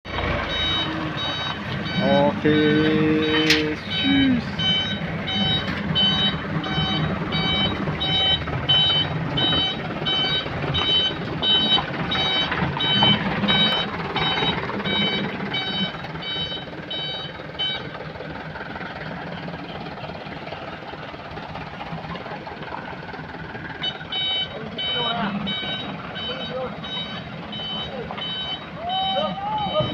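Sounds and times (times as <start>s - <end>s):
diesel engine running: 0.0s - 29.9s
reversing alarm beeping: 0.4s - 18.0s, 23.8s - 29.9s.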